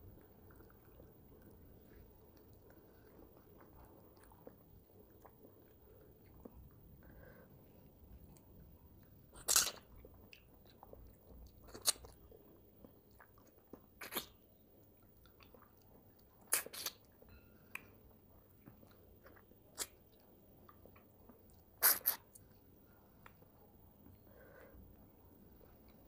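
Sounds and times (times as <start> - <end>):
quiet chewing: 0.0 - 26.0
loud wet mouth clicks: 21.8 - 22.3.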